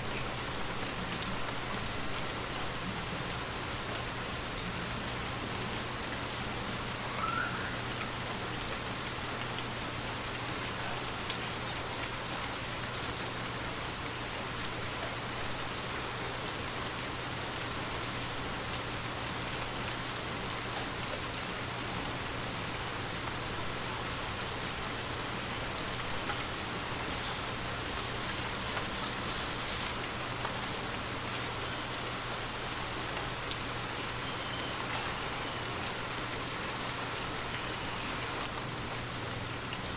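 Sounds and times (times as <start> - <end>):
rain falling: 0.0 - 39.9
raindrops ticking: 25.1 - 30.8.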